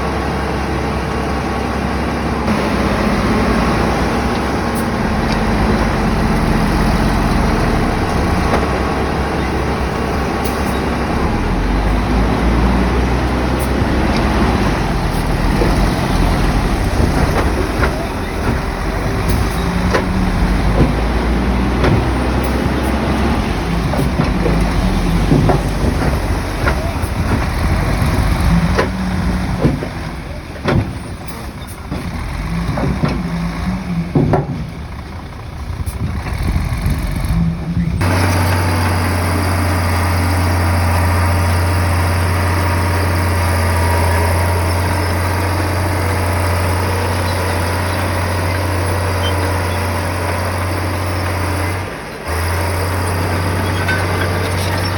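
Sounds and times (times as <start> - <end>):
bulldozer diesel engine working: 0.0 - 54.9
low engine drone: 2.5 - 29.6
metal knocks and clanks: 4.0 - 35.1, 53.1 - 54.9.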